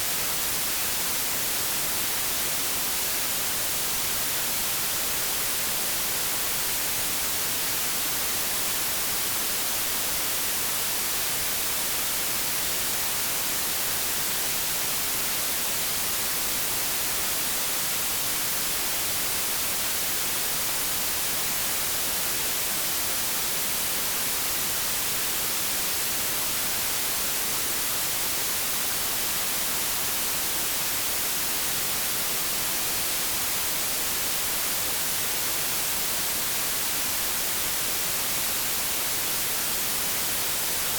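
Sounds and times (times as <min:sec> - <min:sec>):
white noise static hiss: 0:00.0 - 0:40.9.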